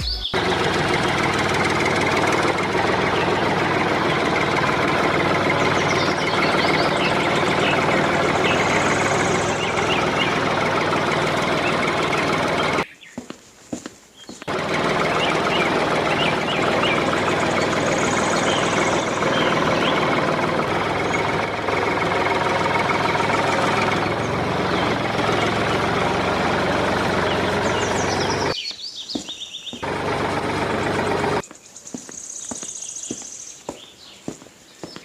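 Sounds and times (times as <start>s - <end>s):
motor running with rattling noise: 0.4s - 12.8s, 14.5s - 28.6s, 29.8s - 31.4s.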